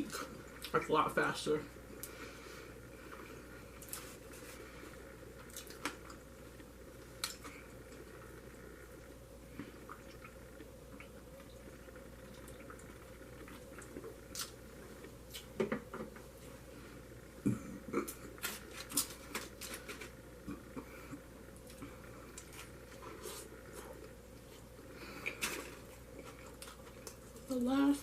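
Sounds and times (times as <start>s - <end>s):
person chewing food: 3.0s - 8.6s, 12.2s - 15.6s, 17.4s - 27.5s.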